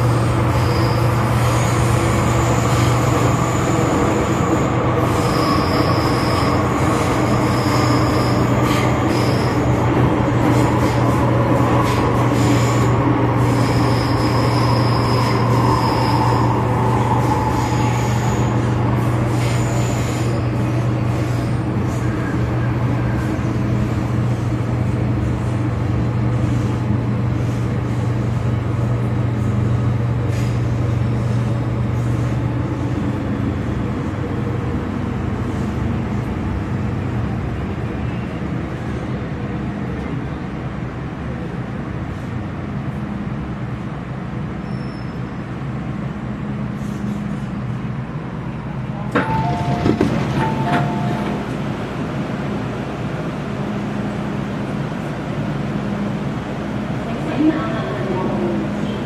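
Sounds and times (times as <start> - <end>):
metro train hum and rumble: 0.0 - 59.0
high squeals: 12.4 - 20.6.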